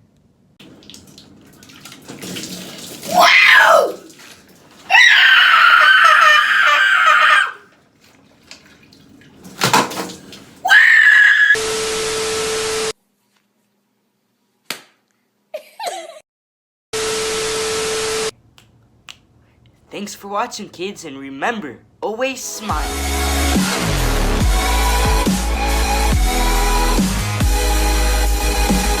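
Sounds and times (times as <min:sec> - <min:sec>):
young person screaming: 0:03.1 - 0:04.1, 0:04.9 - 0:07.7, 0:10.6 - 0:11.6.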